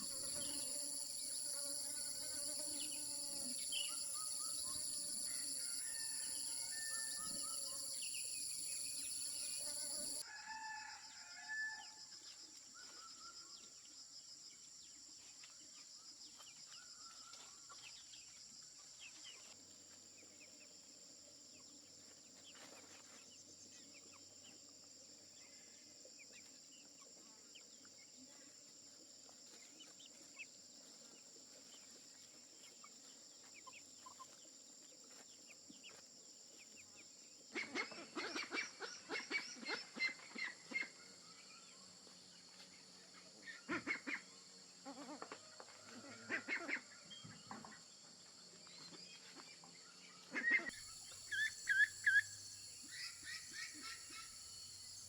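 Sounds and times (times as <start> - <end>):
insects droning: 0.0 - 10.8, 50.7 - 55.0.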